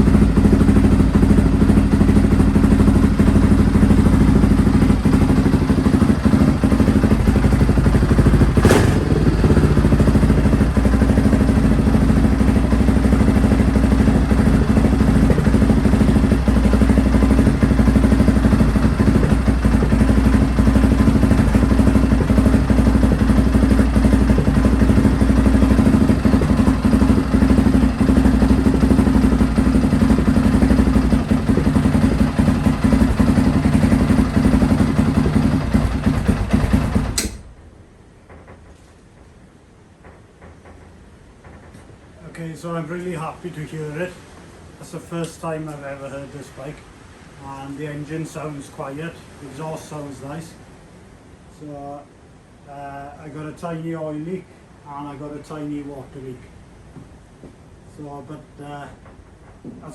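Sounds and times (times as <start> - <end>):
motorcycle engine running: 0.0 - 37.6
sharp knock: 37.2 - 37.4.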